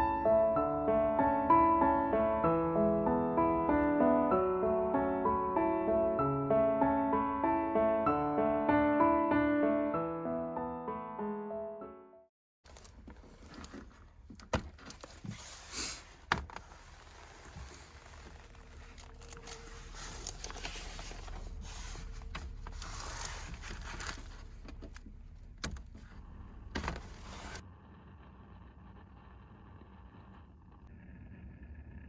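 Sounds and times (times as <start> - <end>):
clicks and rustling of handling: 12.6 - 26.2
low steady rumble: 12.7 - 32.0.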